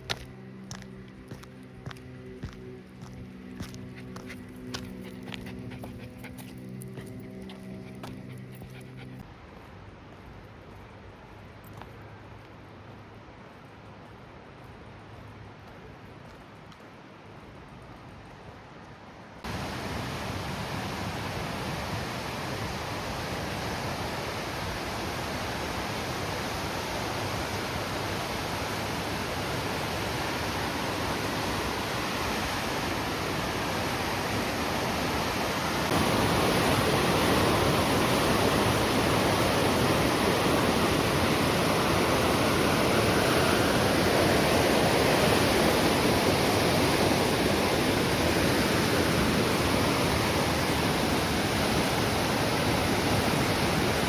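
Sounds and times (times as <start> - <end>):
river rushing: 19.5 - 54.0.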